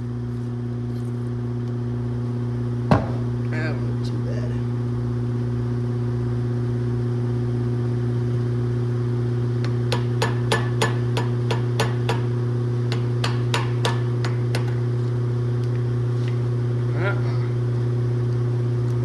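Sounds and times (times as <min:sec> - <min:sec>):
steady low hum: 0:00.0 - 0:19.0
hammer tapping on screwdriver: 0:09.9 - 0:12.3.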